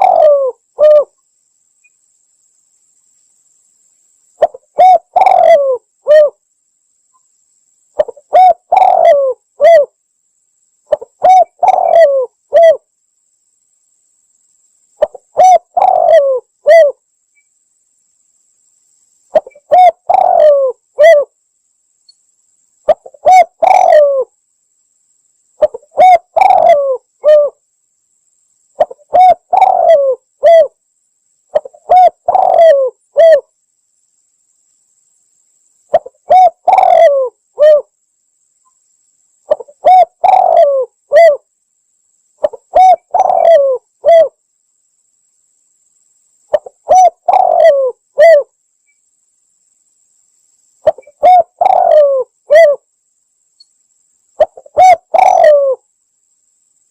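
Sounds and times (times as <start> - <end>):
dove cooing: 0.0 - 1.2, 4.4 - 6.4, 8.0 - 10.0, 10.9 - 12.8, 15.0 - 17.0, 19.3 - 21.3, 22.9 - 24.3, 25.6 - 27.6, 28.8 - 30.8, 31.5 - 33.5, 35.9 - 37.9, 39.5 - 41.4, 42.4 - 44.4, 46.5 - 48.5, 50.8 - 52.8, 54.4 - 55.8.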